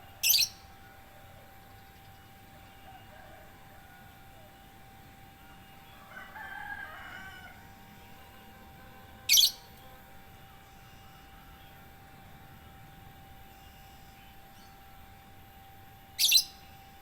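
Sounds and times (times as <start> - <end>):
bird singing a warbling phrase: 0.0 - 1.9, 9.1 - 9.8, 16.2 - 16.8
faint steady hum: 0.0 - 17.0.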